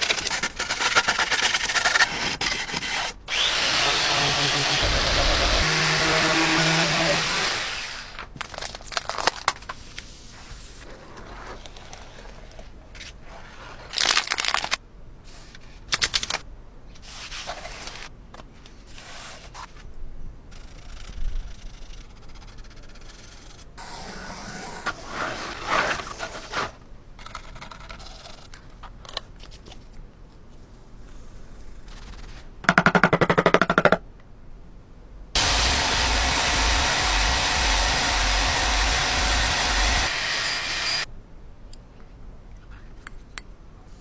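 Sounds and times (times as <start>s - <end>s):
loud rushing noise: 3.3s - 8.0s, 35.4s - 41.1s
rapid rattling burst: 35.4s - 41.0s.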